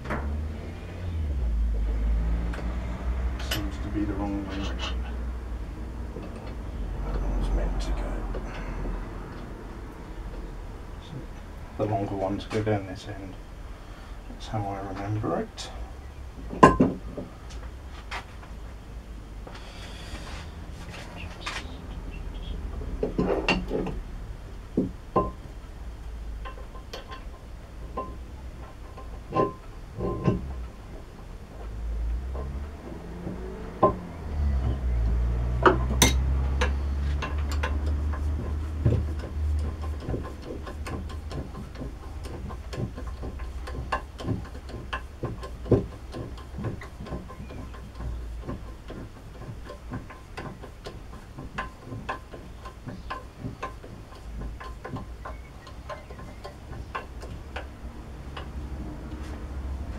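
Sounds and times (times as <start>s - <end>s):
low rumble: 0.0s - 17.9s
metal tools clicking and tapping: 3.3s - 5.2s, 24.8s - 30.8s, 31.5s - 59.9s
loud knocks: 31.6s - 59.1s.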